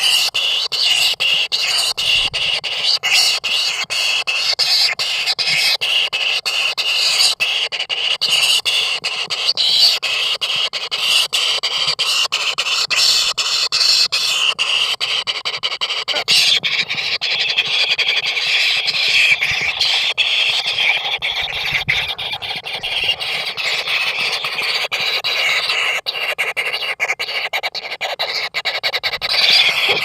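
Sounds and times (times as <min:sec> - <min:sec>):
chicks calling shrilly: 0:00.0 - 0:30.0.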